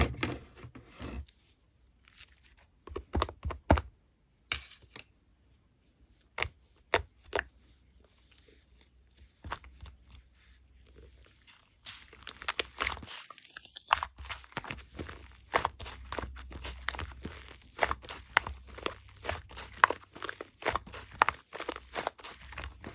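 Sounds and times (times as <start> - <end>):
slime squishing: 6.2 - 22.9.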